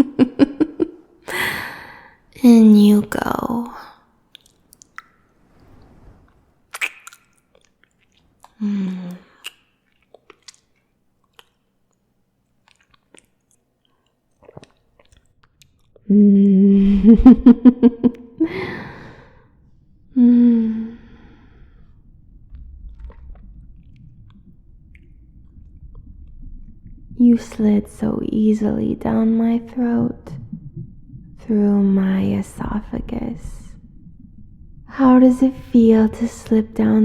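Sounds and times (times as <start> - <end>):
breath: 1.3 - 2.2, 18.4 - 22.0
wet mouth clicks: 4.3 - 5.2, 6.7 - 16.1, 21.5 - 26.4
woman humming: 16.1 - 17.5, 20.1 - 21.8
low rumble: 16.4 - 37.0
woman swallowing: 20.0 - 27.2, 29.7 - 36.3.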